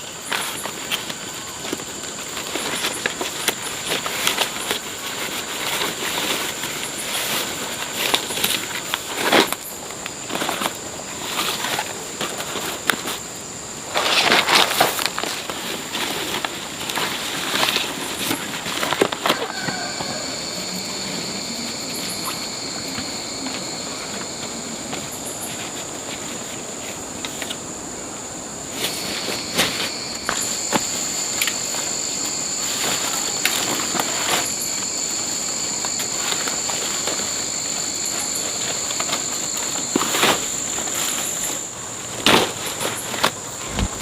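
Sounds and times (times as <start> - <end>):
rustles and snaps: 0.0 - 20.2
insects droning: 0.0 - 44.0.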